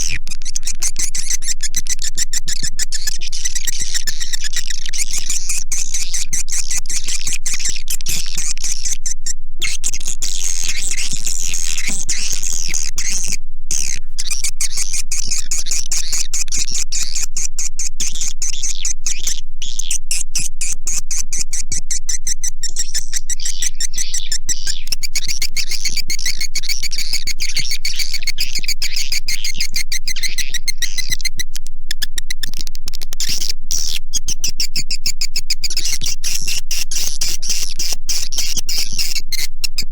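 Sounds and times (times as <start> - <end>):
bird twittering chirps and clicks: 0.0 - 17.2, 21.8 - 39.9.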